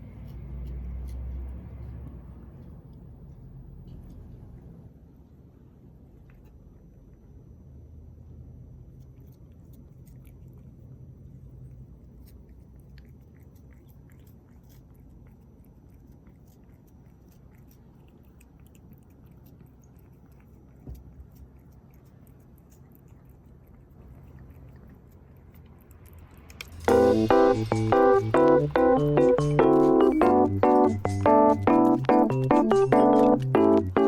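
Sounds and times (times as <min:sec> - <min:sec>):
low steady hum: 0:00.0 - 0:34.0
cat licking wet clicks: 0:08.9 - 0:34.0.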